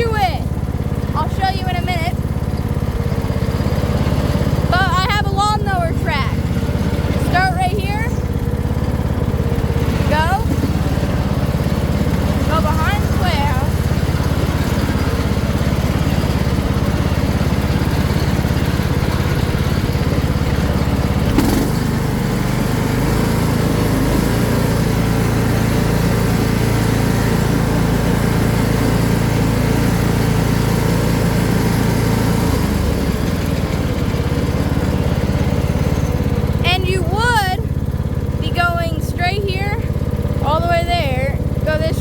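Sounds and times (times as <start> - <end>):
lawn mower engine running: 0.0 - 42.0.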